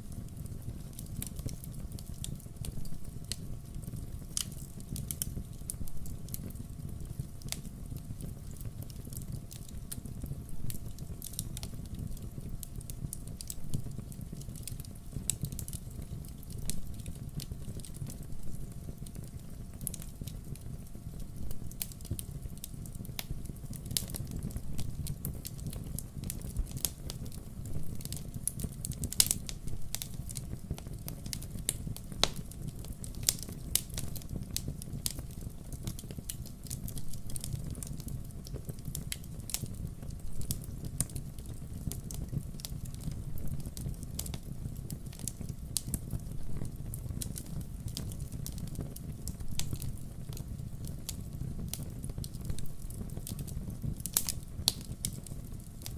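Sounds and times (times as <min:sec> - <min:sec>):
firewood crackling and popping: 0:00.0 - 0:55.9
low rumble of fire: 0:00.0 - 0:55.9.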